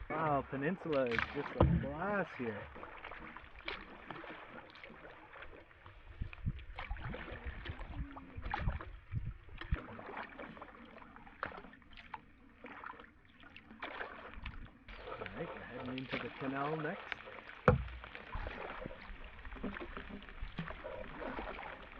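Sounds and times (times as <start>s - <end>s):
paddle strokes in water: 0.0s - 21.9s
short knocks: 17.6s - 18.1s.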